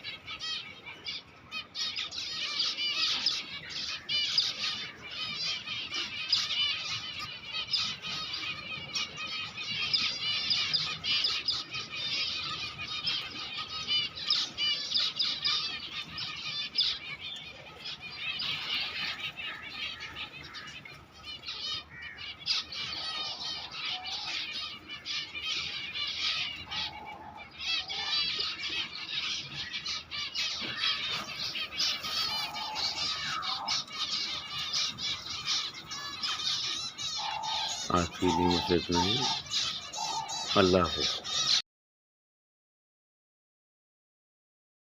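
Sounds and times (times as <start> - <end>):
lower bird calls: 0.0 - 41.6
small birds chirping: 0.0 - 41.6.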